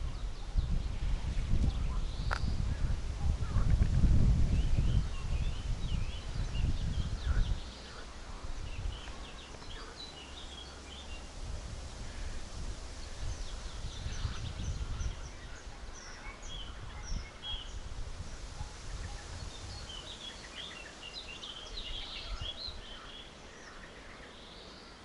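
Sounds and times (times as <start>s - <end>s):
songbirds chirping and trilling: 0.0s - 25.0s.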